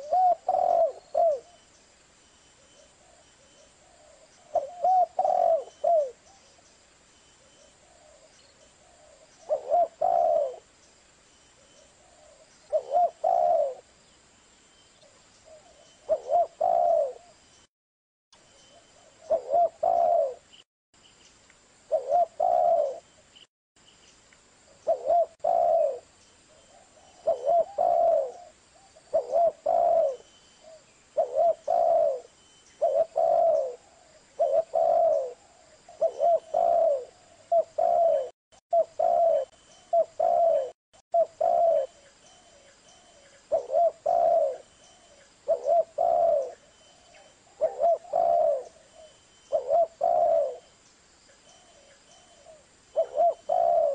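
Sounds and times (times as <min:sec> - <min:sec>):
dove cooing: 0:00.0 - 0:01.6, 0:03.8 - 0:06.4, 0:07.8 - 0:10.7, 0:11.8 - 0:13.9, 0:15.5 - 0:17.4, 0:19.0 - 0:20.5, 0:21.9 - 0:23.1, 0:24.8 - 0:50.7, 0:51.6 - 0:53.9.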